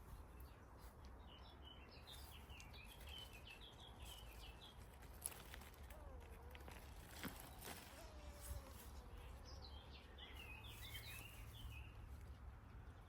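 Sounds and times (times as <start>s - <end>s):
faint bird chirping: 7.2s - 12.1s.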